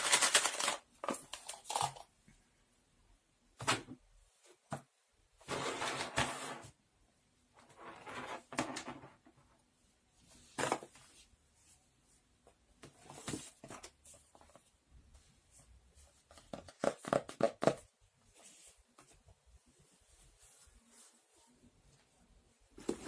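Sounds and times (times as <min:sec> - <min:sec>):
rustling: 0:18.2 - 0:23.0.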